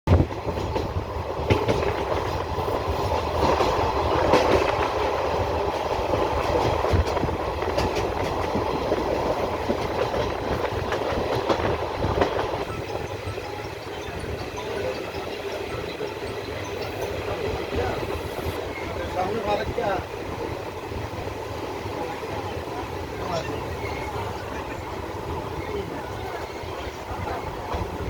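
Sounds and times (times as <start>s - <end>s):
train wheels clattering over rail joints: 0.1s - 21.8s
train rumble: 0.1s - 28.0s.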